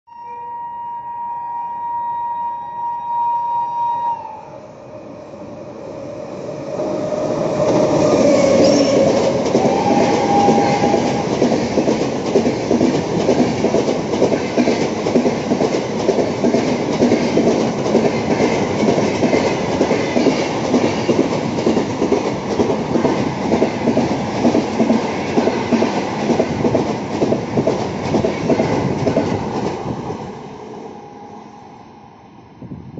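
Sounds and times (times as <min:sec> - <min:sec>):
train wheels clattering over rails: 0:06.8 - 0:30.0.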